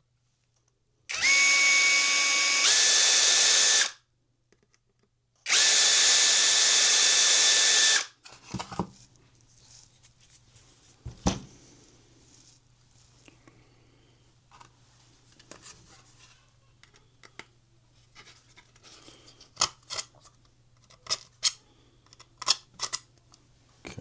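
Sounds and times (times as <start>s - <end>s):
small power tool whining: 1.1s - 4.0s, 5.5s - 8.1s.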